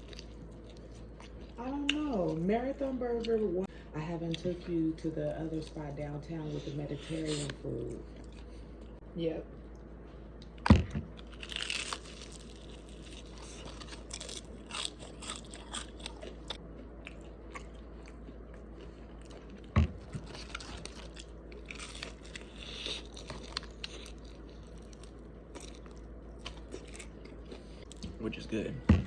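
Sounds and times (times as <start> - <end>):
person chewing crispy chicken: 0.0 - 2.4, 10.4 - 28.1
dull thump: 10.6 - 11.1, 19.7 - 20.3.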